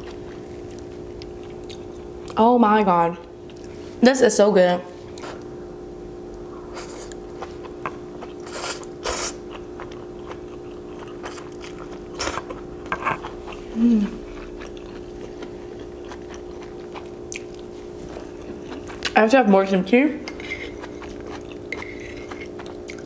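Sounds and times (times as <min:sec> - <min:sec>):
chewing with wet smacks: 0:00.0 - 0:02.4, 0:07.1 - 0:19.3, 0:20.3 - 0:23.0
steady low hum: 0:00.0 - 0:23.0.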